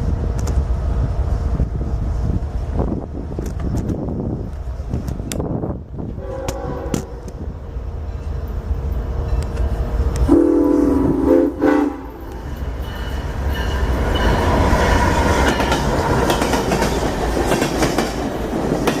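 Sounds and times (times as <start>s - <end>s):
train rumbling and rail clatter: 0.0s - 19.0s
locomotive horn blast: 6.2s - 7.4s, 10.2s - 12.4s.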